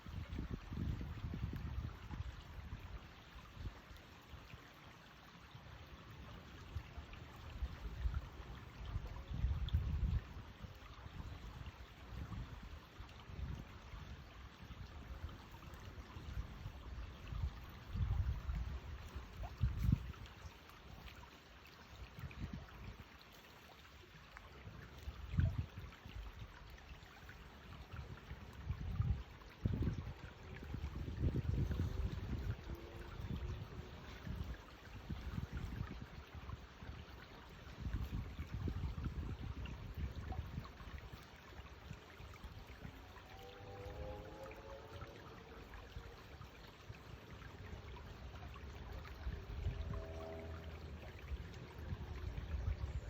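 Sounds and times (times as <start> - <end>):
stream running: 0.0 - 53.0
low rumbling on microphone: 25.0 - 26.8, 27.8 - 41.0, 47.7 - 53.0.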